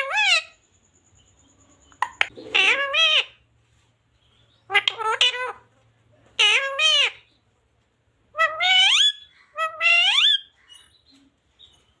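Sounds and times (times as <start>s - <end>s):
parrot calling in high voice: 0.0s - 0.6s, 2.0s - 3.4s, 4.7s - 5.7s, 6.3s - 7.3s, 8.3s - 11.0s.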